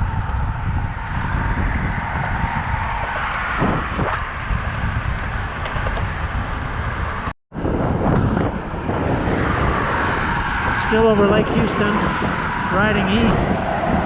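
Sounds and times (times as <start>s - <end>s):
road and traffic rumble: 0.0s - 14.0s
wind rushing over microphone: 0.0s - 14.0s.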